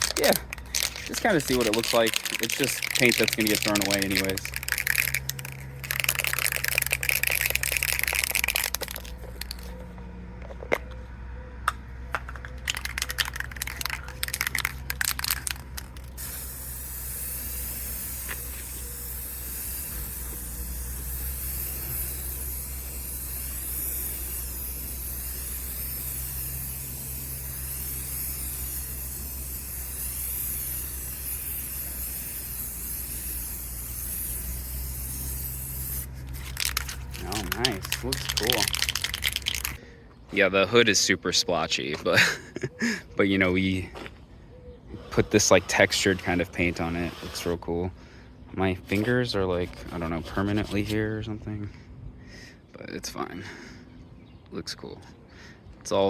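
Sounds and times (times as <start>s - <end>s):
aerosol can spraying: 0.0s - 9.7s, 12.7s - 39.8s.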